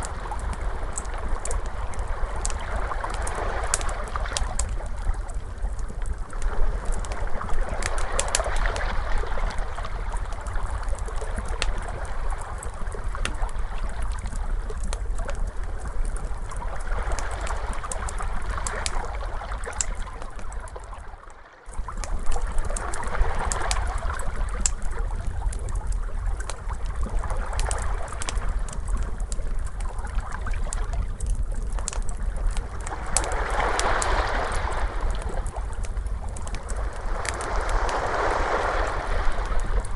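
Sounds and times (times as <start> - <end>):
wood fire crackling: 0.0 - 39.9
steady low rumble: 21.7 - 39.9
ocean waves washing in: 32.8 - 39.9.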